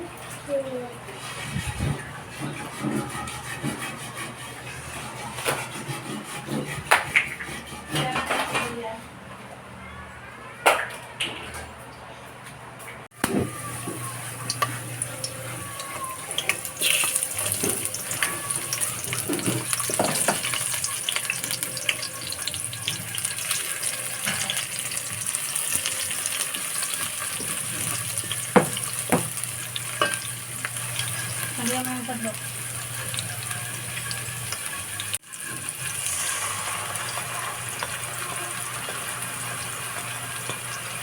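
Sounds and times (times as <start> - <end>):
meat sizzling in oil: 13.2 - 41.0
utensil clattering on pan: 19.0 - 24.8, 26.8 - 36.0.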